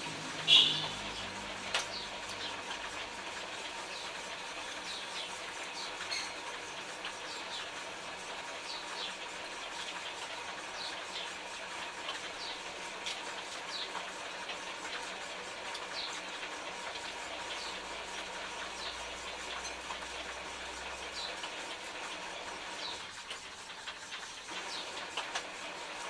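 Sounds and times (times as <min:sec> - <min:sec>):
small birds chirping: 0:00.5 - 0:02.7, 0:03.8 - 0:04.2, 0:04.8 - 0:07.8, 0:08.6 - 0:09.2, 0:12.3 - 0:12.7, 0:13.6 - 0:14.0, 0:15.9 - 0:16.3, 0:24.7 - 0:24.9.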